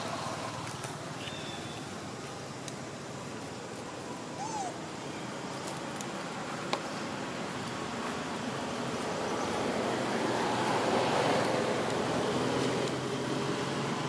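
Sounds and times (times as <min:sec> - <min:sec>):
outdoor rushing noise: 0:04.8 - 0:14.0.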